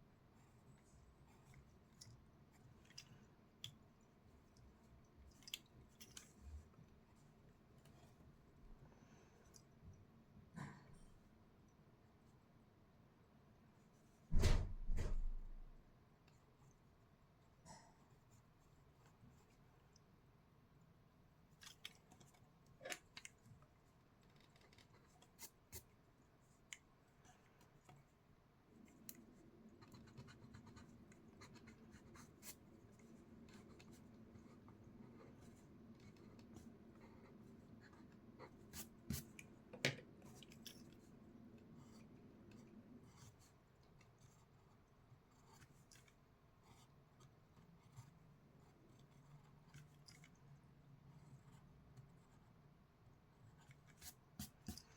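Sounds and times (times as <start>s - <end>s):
pencil scratching on paper: 29.7s - 39.4s.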